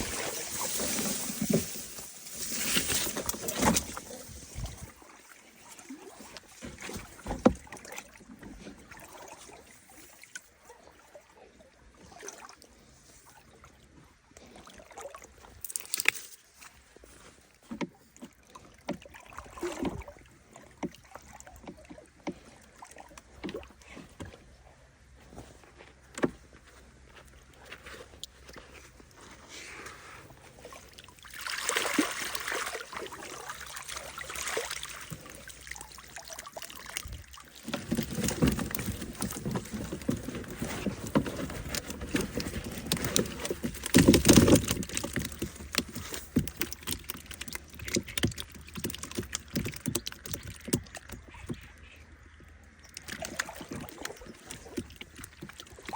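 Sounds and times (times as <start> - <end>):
water splashing and sloshing: 0.0 - 55.9
knocks and clicks of handling: 37.6 - 51.8.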